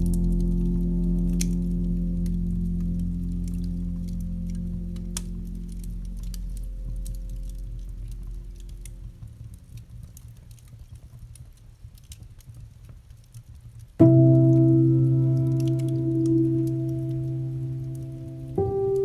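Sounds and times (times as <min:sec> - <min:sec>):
held music chord: 0:00.0 - 0:09.3, 0:14.0 - 0:19.0
low steady chord tones: 0:00.0 - 0:10.0, 0:14.0 - 0:19.0
campfire crackling: 0:00.0 - 0:12.2, 0:14.0 - 0:19.0.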